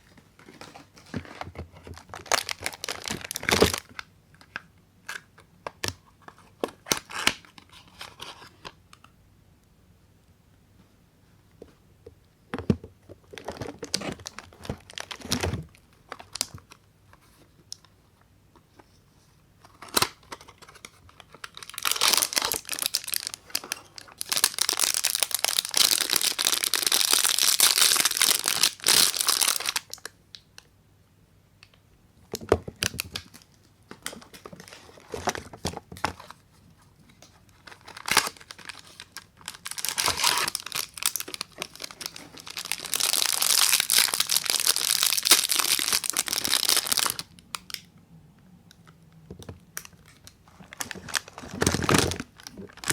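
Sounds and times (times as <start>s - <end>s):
soap wrappers crinkling and tearing: 1.9s - 8.7s, 13.3s - 16.8s, 19.7s - 30.4s, 37.2s - 47.8s, 49.8s - 52.9s.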